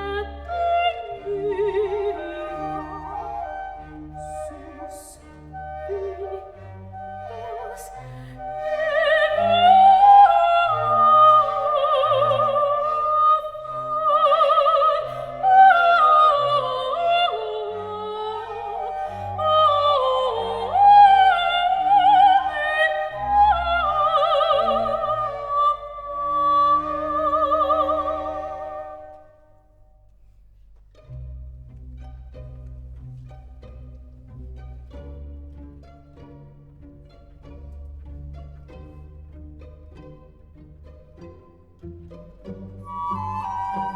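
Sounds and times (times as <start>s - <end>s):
operatic high voice singing: 0.0s - 3.1s, 7.5s - 29.1s
orchestral strings: 0.0s - 43.9s.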